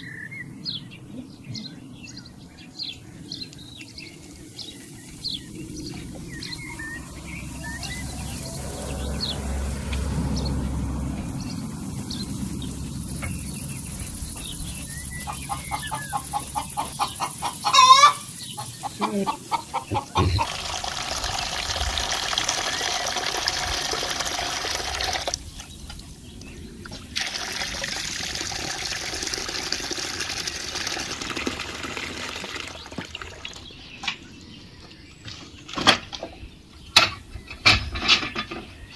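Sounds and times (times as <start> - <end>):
chicken clucking and squawking: 6.7 - 9.4, 14.9 - 20.8
water splashing in a basin: 20.2 - 33.8.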